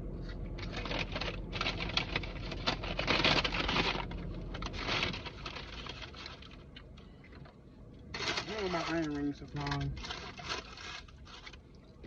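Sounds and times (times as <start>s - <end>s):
steady low hum: 0.0s - 12.0s
rustling and crinkling: 0.2s - 12.0s.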